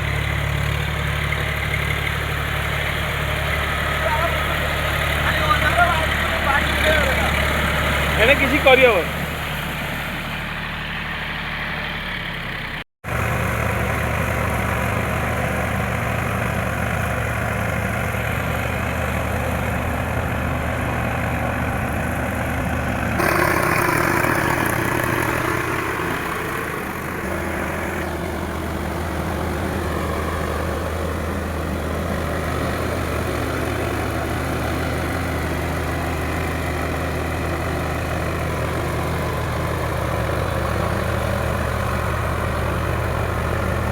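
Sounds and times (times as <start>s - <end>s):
diesel tractor engine running: 0.0s - 43.9s.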